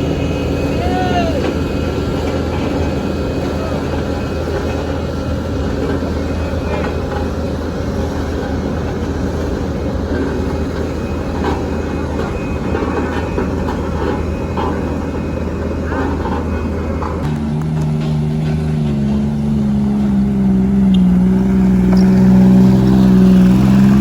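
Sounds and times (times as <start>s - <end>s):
faint voices: 0.0s - 17.3s
diesel truck engine droning: 0.0s - 24.0s.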